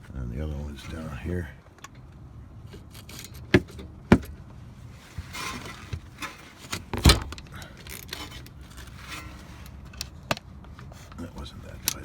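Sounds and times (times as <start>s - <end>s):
metal scrape: 4.9s - 6.7s, 8.1s - 9.8s.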